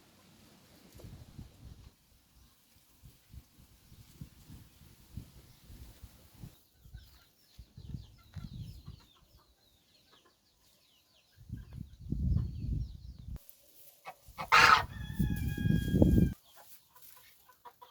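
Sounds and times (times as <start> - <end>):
chickens clucking: 6.4 - 12.8, 13.6 - 17.9.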